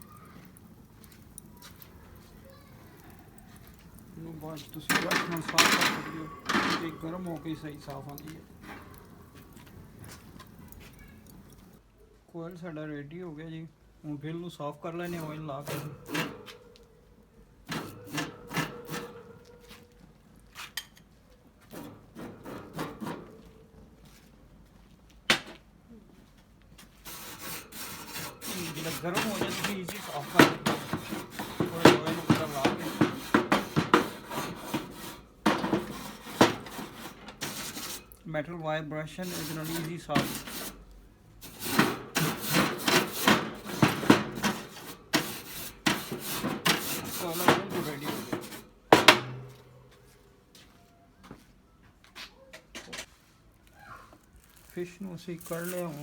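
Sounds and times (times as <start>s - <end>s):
scrubbing a grill grate: 0.0s - 11.8s, 14.9s - 16.7s, 17.7s - 19.5s, 21.7s - 23.4s, 26.9s - 38.2s, 39.0s - 49.6s, 54.5s - 56.0s.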